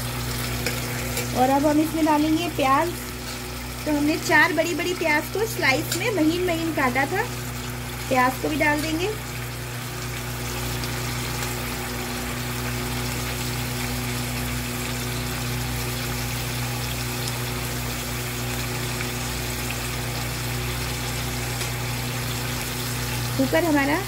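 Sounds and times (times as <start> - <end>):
meat and onions sizzling in oil: 0.0 - 24.0.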